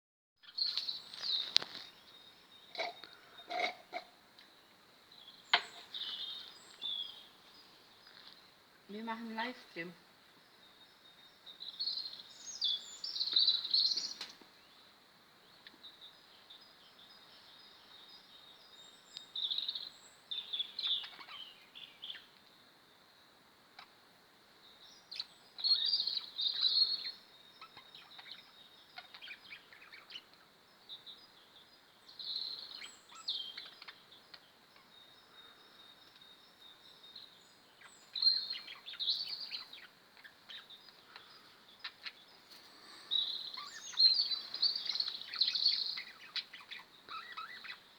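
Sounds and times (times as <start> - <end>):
budgerigars chirping: 20.5 - 22.3, 25.2 - 30.4, 32.6 - 34.9, 38.1 - 47.8.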